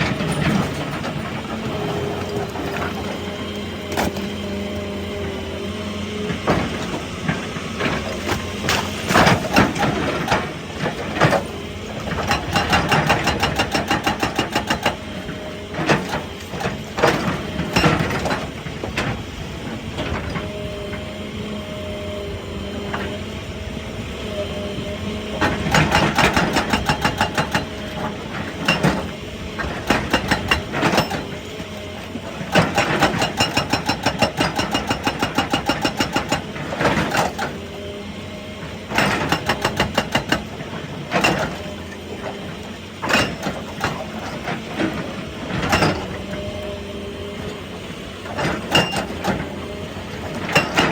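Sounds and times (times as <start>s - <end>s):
hydraulic breaker hammering rock: 0.0s - 21.1s, 24.8s - 50.9s
diesel engine running: 0.0s - 50.9s.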